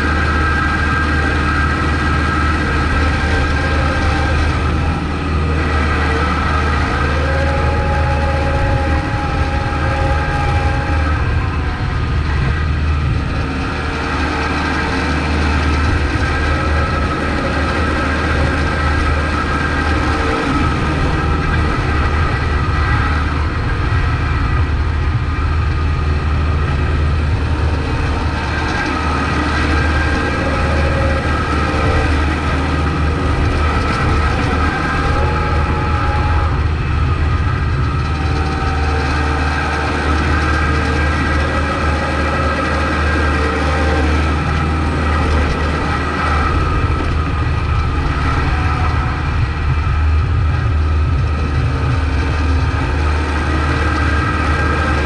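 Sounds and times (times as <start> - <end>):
steady whine: 0.0 - 55.0
tractor diesel engine droning: 0.0 - 55.0.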